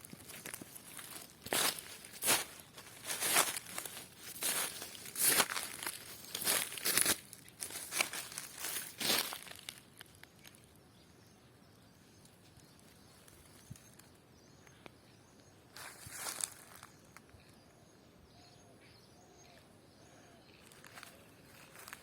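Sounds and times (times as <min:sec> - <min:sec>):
footsteps on dry ground litter: 0:00.0 - 0:10.6, 0:15.7 - 0:17.0, 0:20.6 - 0:22.0
faint bird chirps: 0:10.2 - 0:22.0.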